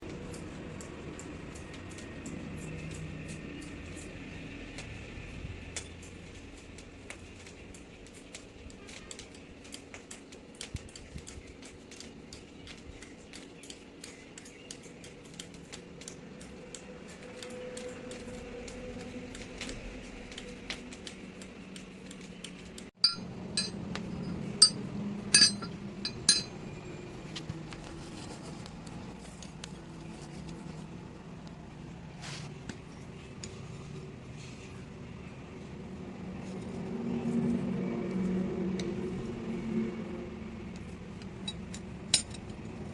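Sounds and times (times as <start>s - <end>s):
light metal clicking and clinking: 22.4s - 26.6s, 41.2s - 42.6s
loud ringing metal strikes: 23.0s - 26.6s.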